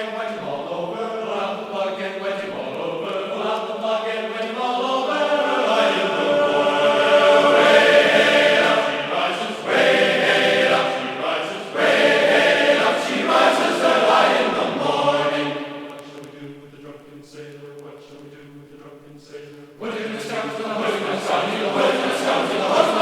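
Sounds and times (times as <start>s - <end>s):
choir holding long chords: 0.0s - 23.0s.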